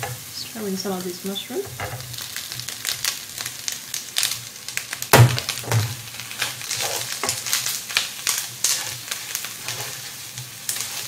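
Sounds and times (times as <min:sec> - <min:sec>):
paste sizzling in oil: 0:00.0 - 0:11.0
loud knock: 0:05.2 - 0:05.9
spatulas scraping a pan: 0:05.7 - 0:11.0.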